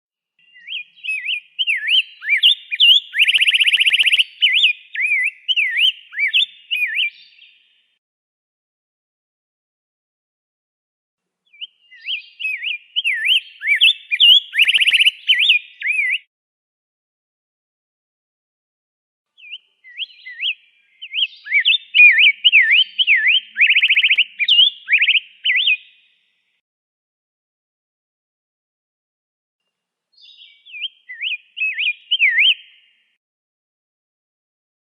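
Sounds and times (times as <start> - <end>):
bird singing whistled phrases: 0.4 - 7.6, 11.5 - 16.3, 19.4 - 26.0, 30.2 - 32.9
bird trill: 0.4 - 7.9, 11.5 - 16.3, 19.4 - 26.4, 30.2 - 33.2.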